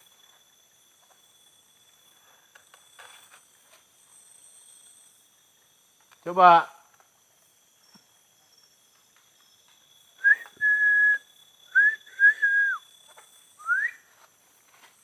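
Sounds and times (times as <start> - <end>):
whistled notes: 10.2 - 12.8, 13.6 - 14.1.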